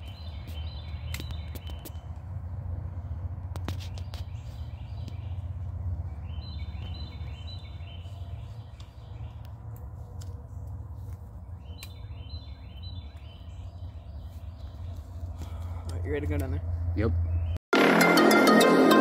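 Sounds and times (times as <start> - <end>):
bird chirping: 0.0 - 2.2, 3.7 - 15.9, 17.1 - 17.6.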